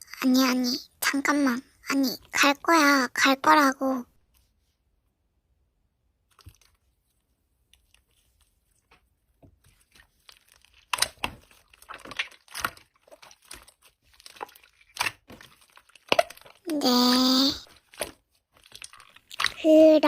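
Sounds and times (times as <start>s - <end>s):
slime squished by hand: 6.2s - 19.7s.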